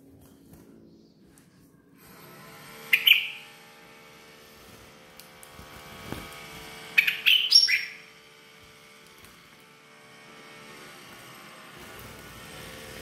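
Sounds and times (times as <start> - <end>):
small songbird chirping: 2.9 - 3.5, 7.0 - 8.0.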